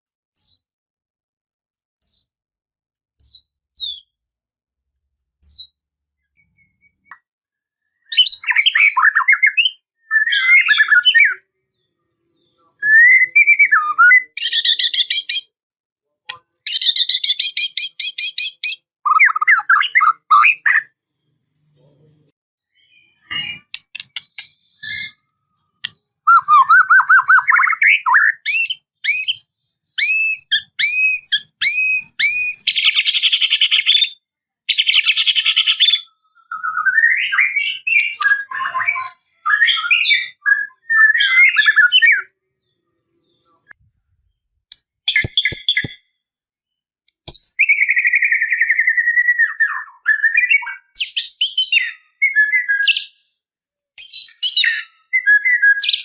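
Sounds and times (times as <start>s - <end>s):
songbird singing whistled phrases: 0.3s - 0.7s, 2.0s - 2.4s, 3.2s - 4.3s, 5.4s - 15.5s, 16.3s - 21.0s, 22.7s - 42.8s, 44.3s - 53.4s, 54.0s - 56.0s
sharp clicks: 23.7s - 24.7s.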